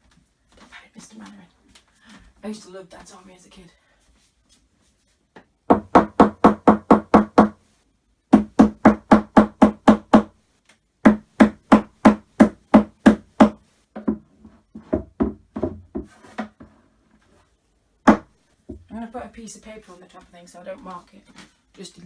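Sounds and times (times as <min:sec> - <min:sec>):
hammer knocking on wood panels: 0:05.4 - 0:07.6, 0:08.3 - 0:10.3, 0:11.0 - 0:16.8, 0:18.0 - 0:18.9.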